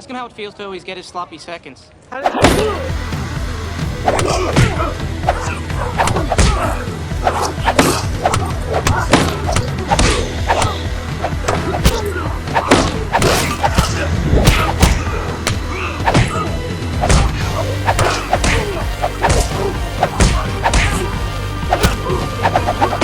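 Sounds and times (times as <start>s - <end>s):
whooshes: 7.2s - 15.1s, 17.0s - 21.0s, 21.7s - 23.0s
punch and kick impacts: 11.5s - 15.2s, 16.1s - 16.4s, 17.0s - 21.1s, 21.7s - 23.0s.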